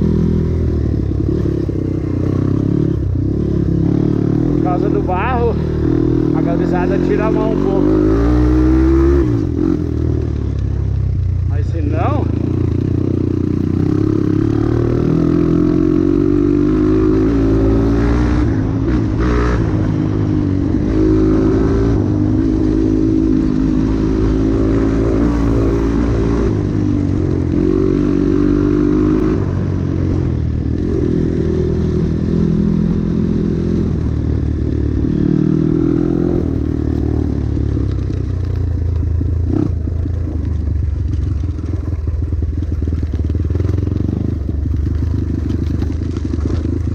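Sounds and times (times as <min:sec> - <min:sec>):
motorcycle engine revving: 0:00.0 - 0:46.9
knocks and clatter from bike: 0:37.6 - 0:46.9.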